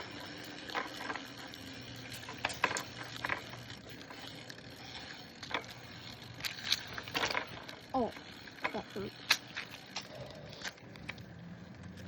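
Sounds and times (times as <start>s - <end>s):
bicycle rattles and knocks: 0.0s - 12.0s
bicycle rolling over rough ground: 0.0s - 12.0s.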